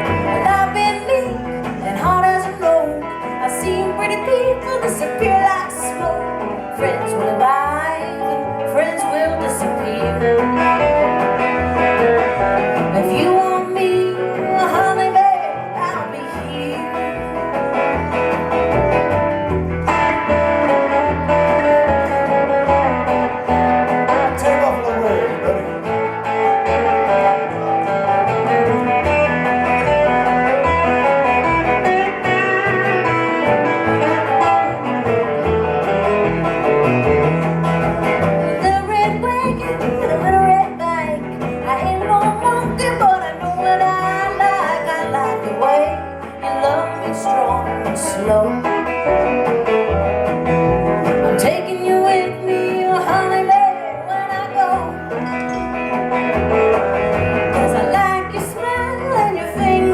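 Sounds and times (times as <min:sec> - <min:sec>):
guitar playing: 0:00.0 - 0:59.9
person singing: 0:12.9 - 0:17.4, 0:38.4 - 0:49.1, 0:51.2 - 0:55.6, 0:57.5 - 0:59.9
steady bass line: 0:15.6 - 0:45.0, 0:54.4 - 0:59.9.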